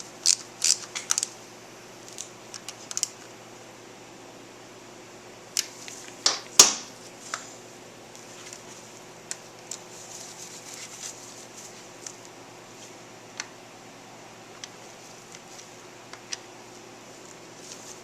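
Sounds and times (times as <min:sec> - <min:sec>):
steady low hum: 0:00.0 - 0:18.0
rustling: 0:08.2 - 0:13.0, 0:17.1 - 0:18.0.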